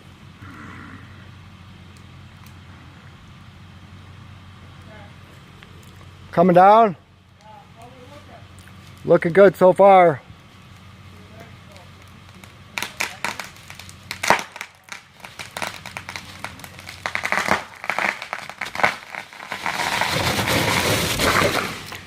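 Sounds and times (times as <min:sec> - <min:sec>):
wood cracking: 0:11.6 - 0:22.0
crash of falling branches: 0:12.0 - 0:22.0.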